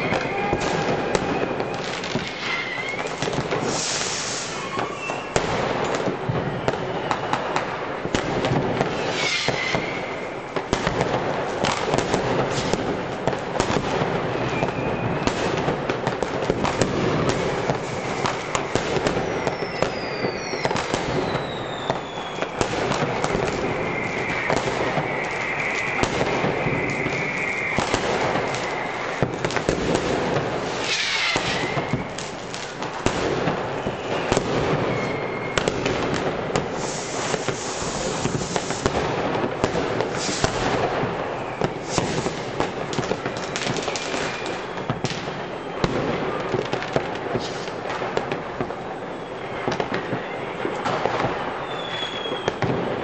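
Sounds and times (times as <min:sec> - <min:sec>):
rocket whistles: 0:00.0 - 0:07.6, 0:08.8 - 0:10.6, 0:14.3 - 0:15.4, 0:16.7 - 0:32.2, 0:33.5 - 0:36.0, 0:36.6 - 0:38.9, 0:40.0 - 0:46.0, 0:49.0 - 0:52.8
fireworks crackling and bursting: 0:00.0 - 0:53.0.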